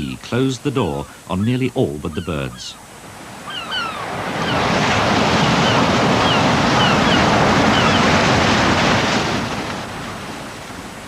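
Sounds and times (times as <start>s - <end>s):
sea surf breaking: 0.0s - 11.0s
falling bird calls: 1.0s - 2.8s, 3.4s - 4.7s, 5.4s - 8.2s.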